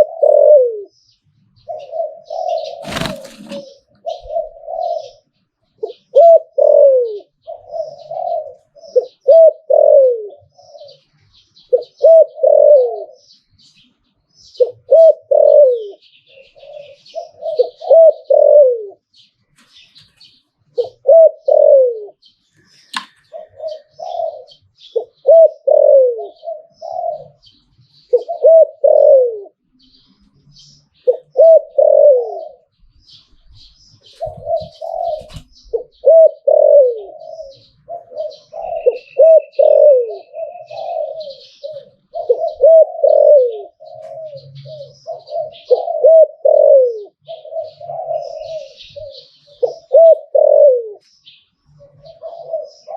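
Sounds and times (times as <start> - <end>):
dove cooing: 0.0 - 1.0, 1.6 - 13.2, 14.5 - 19.2, 20.3 - 29.6, 31.0 - 51.1, 51.7 - 52.9
sharp click: 22.9 - 23.2.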